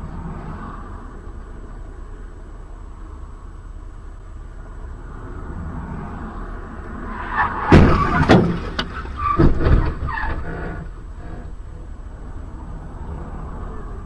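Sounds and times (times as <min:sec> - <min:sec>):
vehicle road rumble: 0:00.0 - 0:14.0
knocks and clatter: 0:07.6 - 0:11.5.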